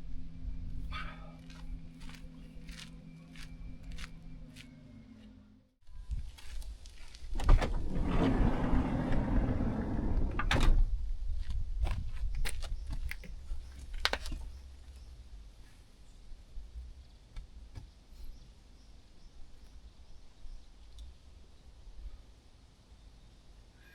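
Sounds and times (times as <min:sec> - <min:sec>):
van door clunk: 0:07.4 - 0:10.9.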